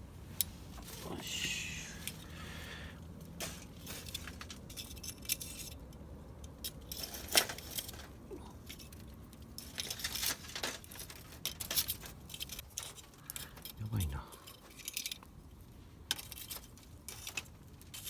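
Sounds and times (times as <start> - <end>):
charcoal and grill parts clinking: 3.3 - 13.8.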